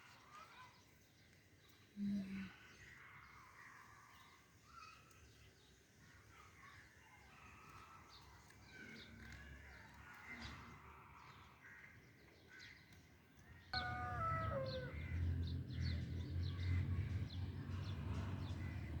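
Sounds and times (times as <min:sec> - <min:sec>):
birds chirping and calling: 0:13.8 - 0:19.0.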